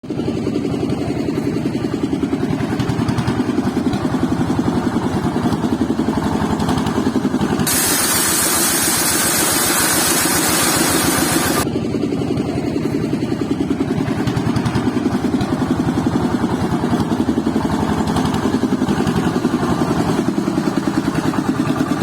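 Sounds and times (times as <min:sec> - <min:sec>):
engine idling with rapid chug: 0:00.0 - 0:22.0
loud hiss: 0:07.7 - 0:11.6.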